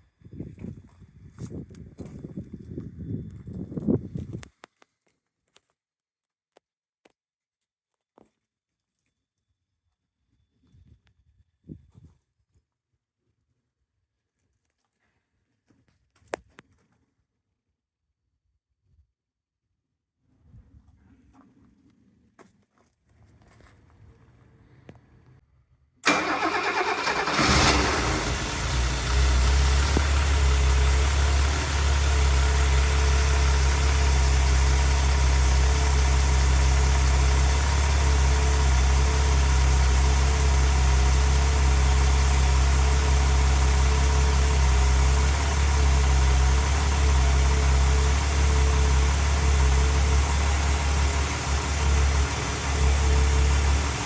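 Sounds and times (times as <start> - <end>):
car engine starting and idling: 26.0 - 54.0.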